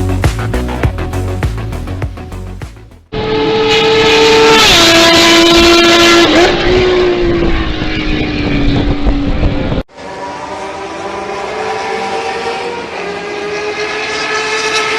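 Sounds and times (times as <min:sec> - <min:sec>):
motorcycle engine at high revs: 0:03.2 - 0:14.9.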